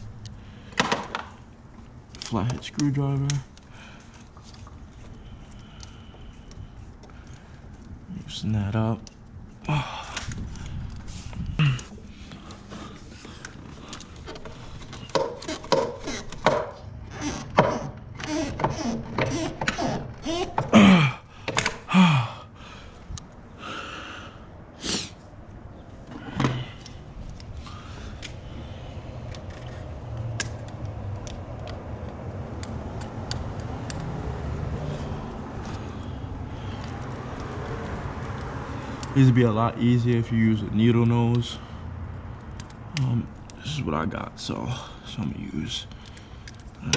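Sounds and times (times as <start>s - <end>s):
screwdriver on hose clamp: 15.1s - 20.7s.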